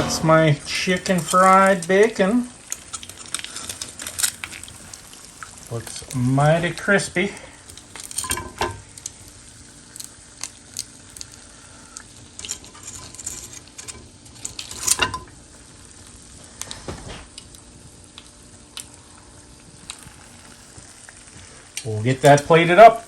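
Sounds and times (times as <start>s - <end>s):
loud knock: 0.0s - 0.8s
food deep-frying in oil: 0.0s - 23.0s.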